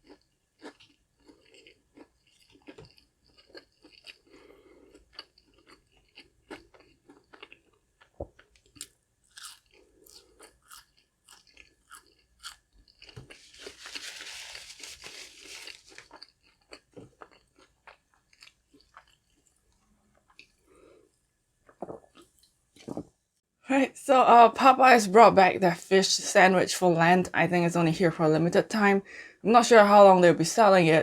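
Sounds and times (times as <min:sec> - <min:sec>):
chewing crispy fried food: 0:00.0 - 0:23.0.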